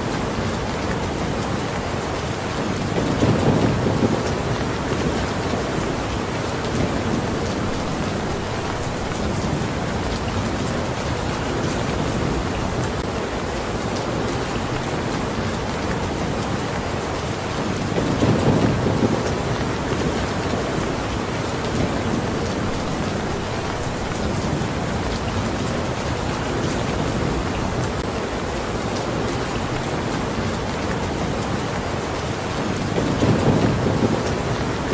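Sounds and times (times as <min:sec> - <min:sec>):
heavy rain: 0:00.0 - 0:34.9
low rumble of thunder: 0:03.0 - 0:13.0, 0:18.0 - 0:28.0, 0:33.0 - 0:34.9.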